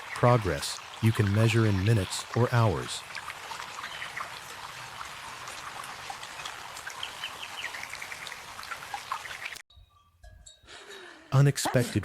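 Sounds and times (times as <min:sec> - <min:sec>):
water trickling and dripping: 0:00.0 - 0:09.6.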